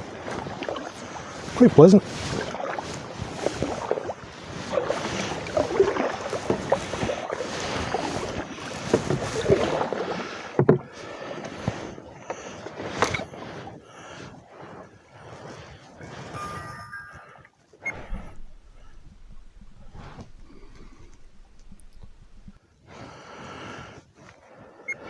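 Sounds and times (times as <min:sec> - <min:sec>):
paddle splashing in water: 0:00.0 - 0:12.0, 0:17.9 - 0:22.6.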